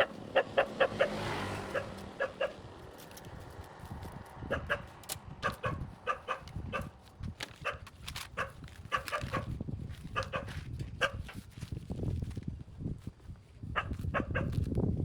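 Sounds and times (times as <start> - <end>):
dog barking: 0.0 - 2.6, 4.5 - 6.9, 7.6 - 7.8, 8.4 - 9.5, 10.1 - 11.3, 13.7 - 14.6.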